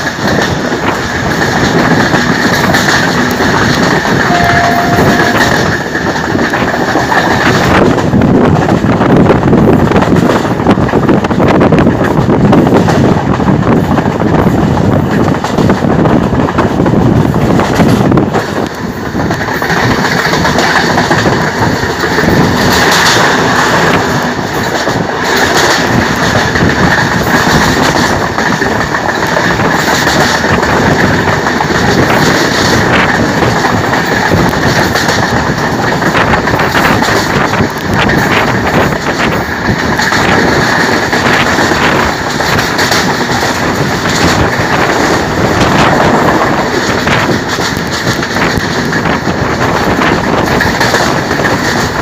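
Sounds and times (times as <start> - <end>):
train carriage rumbling: 0.0 - 52.0
wheels clattering on rails: 0.0 - 52.0
steady high ring: 4.3 - 5.9.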